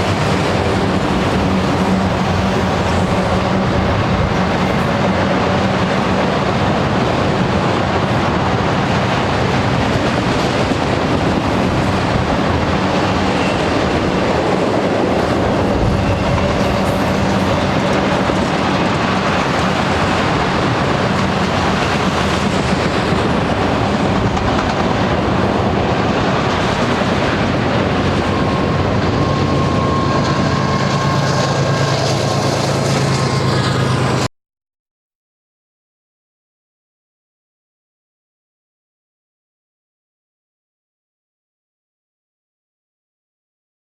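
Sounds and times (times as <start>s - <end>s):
freight train rumbling past: 0.0s - 34.3s
wheels clattering on rails: 0.0s - 34.3s.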